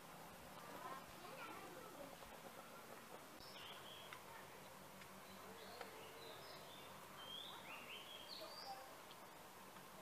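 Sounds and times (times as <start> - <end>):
faint steady hiss: 0.0 - 10.0
birds whistling: 3.4 - 4.1, 5.2 - 8.8.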